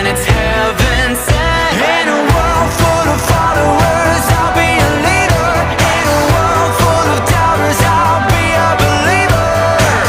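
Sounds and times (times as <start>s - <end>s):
drum and bass beat: 0.0s - 10.0s
pop-rock song with vocals: 0.0s - 10.0s.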